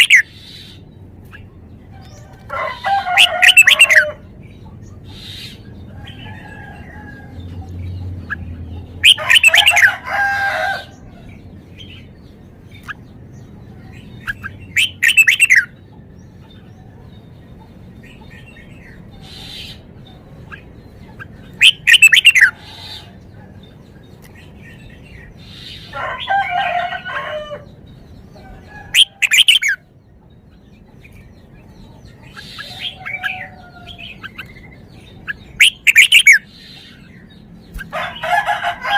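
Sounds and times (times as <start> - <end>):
low steady background hum: 0.0 - 38.9
bird singing whistled phrases: 14.8 - 15.7.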